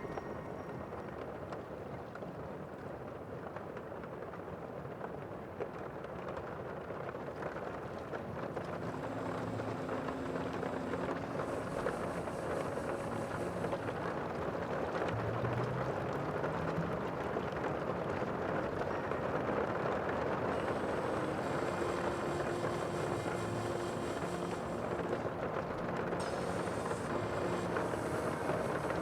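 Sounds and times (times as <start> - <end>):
faint low hum: 8.4 - 29.0.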